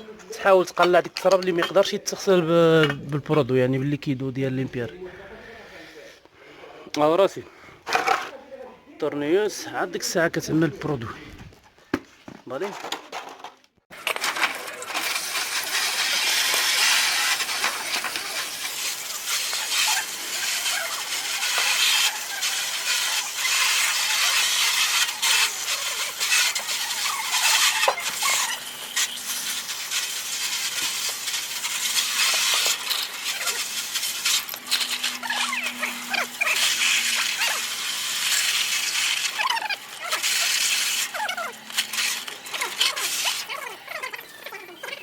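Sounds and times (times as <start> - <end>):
brush scrubbing metal: 14.2 - 44.2.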